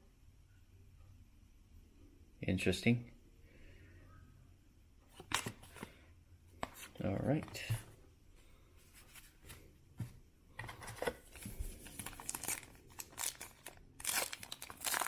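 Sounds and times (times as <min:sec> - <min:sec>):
foil wrapper tearing and crinkling: 0:11.8 - 0:15.0.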